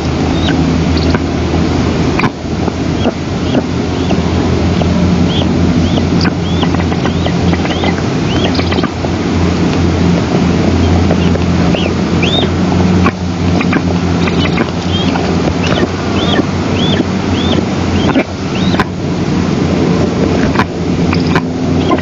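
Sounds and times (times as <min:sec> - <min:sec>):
low hum and rumble: 0:00.0 - 0:22.0
short high bird calls: 0:10.8 - 0:12.5.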